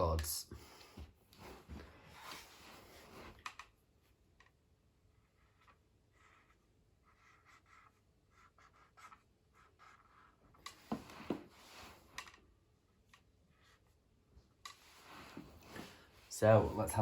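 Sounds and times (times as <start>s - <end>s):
marker scratching on whiteboard: 5.1s - 12.3s, 13.2s - 14.0s.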